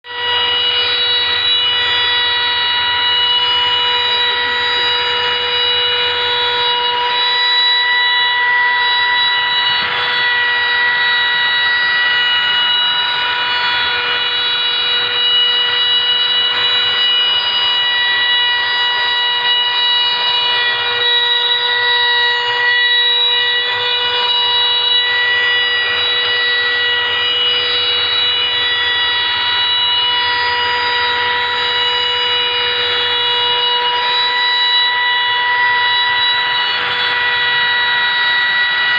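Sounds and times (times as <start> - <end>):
router spindle whining: 0.0 - 38.9.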